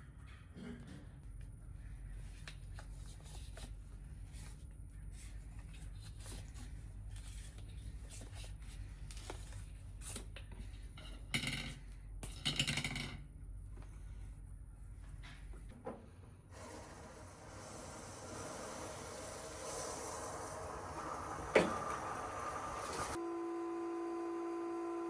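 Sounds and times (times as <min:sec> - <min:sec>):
low steady hum: 0:00.0 - 0:16.5.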